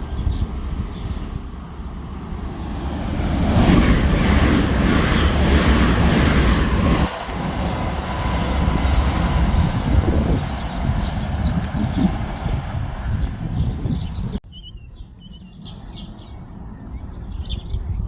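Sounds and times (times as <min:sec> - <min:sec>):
train wheels on rails: 0:00.0 - 0:14.4
wind buffeting microphone: 0:00.0 - 0:18.0.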